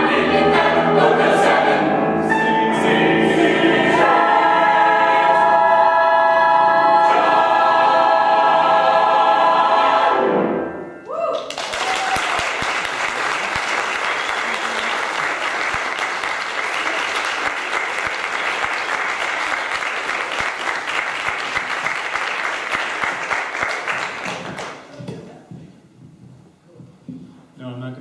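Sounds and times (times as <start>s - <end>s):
audience applauding: 11.3s - 25.0s.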